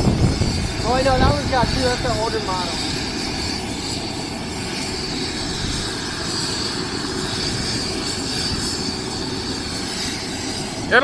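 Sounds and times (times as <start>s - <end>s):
helicopter engine whine: 0.0s - 11.0s.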